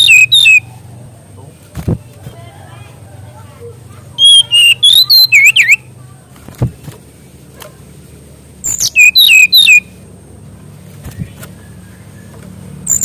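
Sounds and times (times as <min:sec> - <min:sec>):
songbird whistling: 0:00.0 - 0:00.7, 0:04.2 - 0:05.9, 0:08.6 - 0:10.0, 0:11.1 - 0:13.0.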